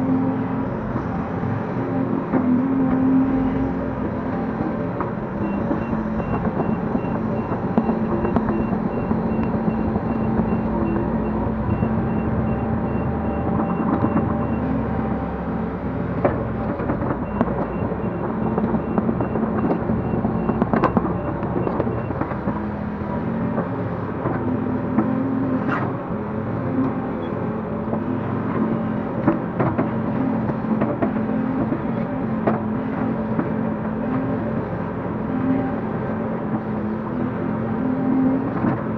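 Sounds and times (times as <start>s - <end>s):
excavator diesel engine running: 0.0s - 38.9s
backup alarm beeping: 4.3s - 15.6s, 17.2s - 22.4s.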